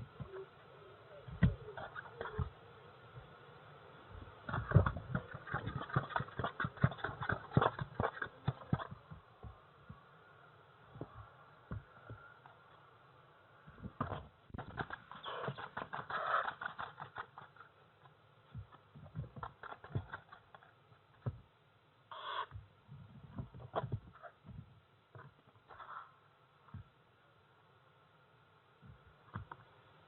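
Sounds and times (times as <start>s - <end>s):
owlets shuffling and scratching: 4.4s - 9.2s.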